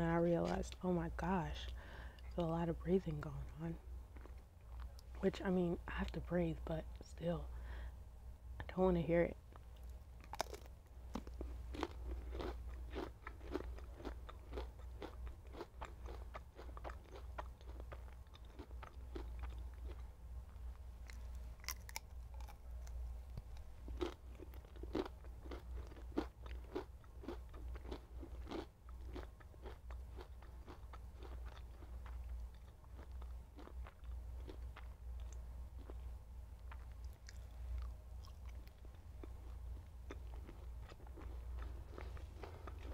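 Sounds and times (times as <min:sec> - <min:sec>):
bacon crunching as chewed: 0:09.7 - 0:20.0, 0:21.0 - 0:36.0.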